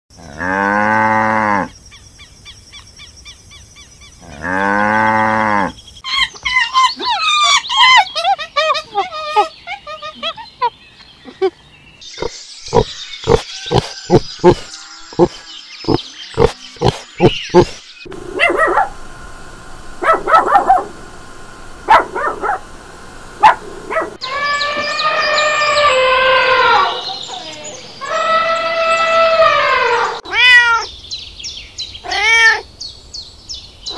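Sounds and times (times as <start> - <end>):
small dog yipping: 6.1 - 10.7.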